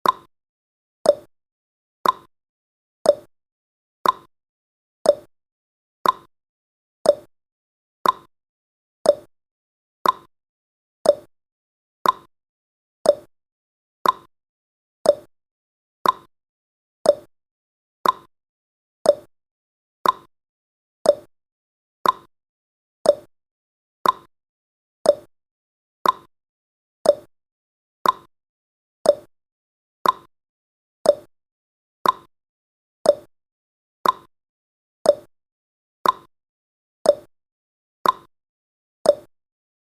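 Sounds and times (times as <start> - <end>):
timer ticking: 0.0 - 0.3, 1.1 - 1.3, 2.0 - 2.3, 3.1 - 3.3, 4.0 - 4.3, 5.1 - 5.3, 6.0 - 6.3, 7.1 - 7.3, 8.0 - 8.3, 9.0 - 9.3, 10.0 - 10.3, 11.0 - 11.3, 12.0 - 12.3, 13.0 - 13.3, 14.0 - 14.3, 15.0 - 15.3, 16.0 - 16.3, 17.0 - 17.3, 18.0 - 18.3, 19.0 - 19.3, 20.0 - 20.3, 21.0 - 21.3, 22.0 - 22.3, 23.0 - 23.3, 24.0 - 24.3, 25.0 - 25.3, 26.0 - 26.3, 27.0 - 27.3, 28.0 - 28.3, 29.0 - 29.3, 30.0 - 30.3, 31.0 - 31.3, 32.0 - 32.3, 33.0 - 33.3, 34.0 - 34.3, 35.1 - 35.3, 36.0 - 36.3, 37.1 - 37.3, 38.0 - 38.3, 39.1 - 39.3.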